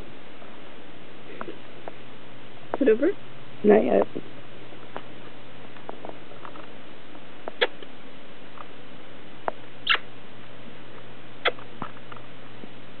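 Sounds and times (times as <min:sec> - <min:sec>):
parrot clicks and squeaks: 0:09.8 - 0:10.0.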